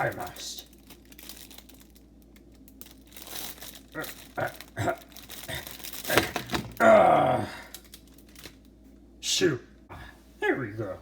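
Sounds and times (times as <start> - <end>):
food wrapper crinkling: 0.0 - 6.9, 7.6 - 8.8.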